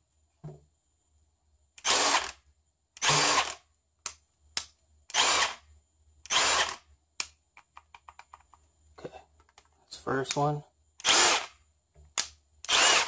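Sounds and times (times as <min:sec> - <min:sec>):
impact wrench bursts: 0:01.8 - 0:02.4, 0:03.0 - 0:03.6, 0:05.1 - 0:05.6, 0:06.3 - 0:06.8, 0:11.0 - 0:11.6, 0:12.6 - 0:13.0.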